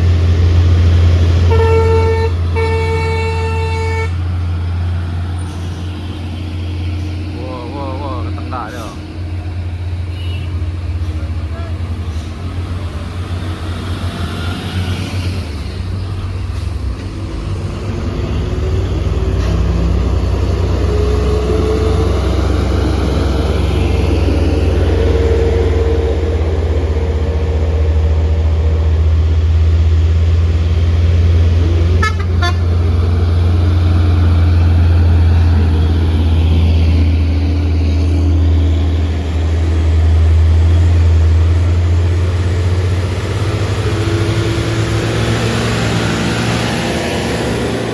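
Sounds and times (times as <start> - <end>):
diesel truck engine labouring: 0.0 - 47.9.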